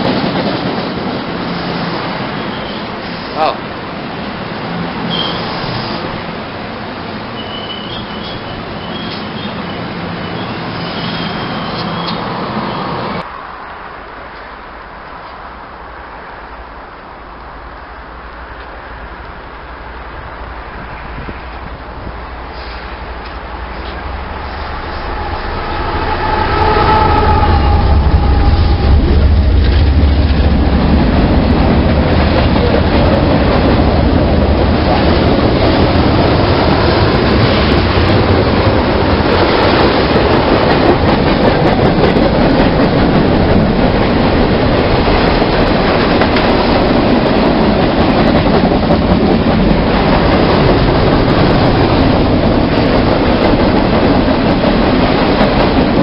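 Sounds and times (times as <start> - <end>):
locomotive engine drone: 12.9 - 48.8.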